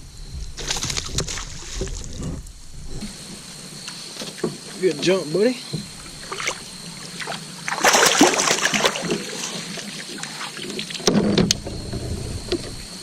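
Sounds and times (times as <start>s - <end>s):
fish splashing at water surface: 6.0s - 11.1s.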